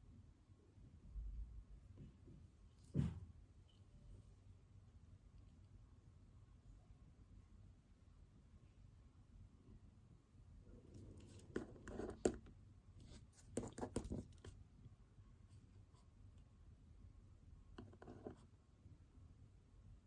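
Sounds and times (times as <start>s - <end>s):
pen scratching on paper: 10.9s - 14.6s, 17.8s - 18.5s.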